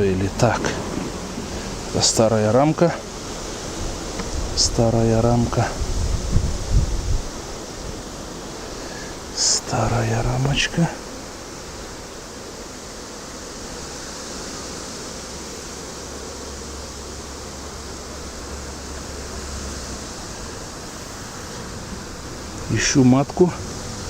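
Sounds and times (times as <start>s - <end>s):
wind rushing: 3.7s - 8.0s.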